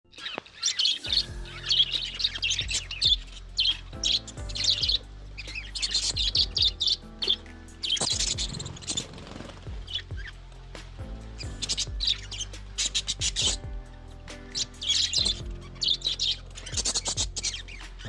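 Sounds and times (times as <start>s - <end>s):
budgerigars chirping: 0.0s - 10.4s, 11.1s - 18.0s
background music with bass line: 1.0s - 18.0s.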